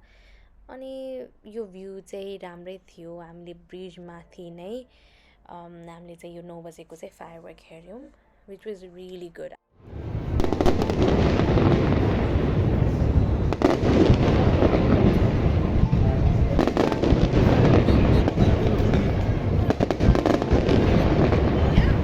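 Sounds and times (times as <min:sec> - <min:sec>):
fireworks booming: 0:09.9 - 0:22.0
sharp firework cracks: 0:10.2 - 0:22.0.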